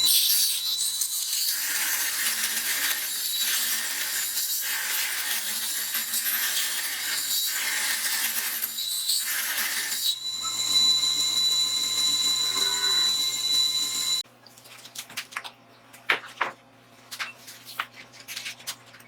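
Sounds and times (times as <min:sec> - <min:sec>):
belt sander grinding: 0:09.2 - 0:14.2.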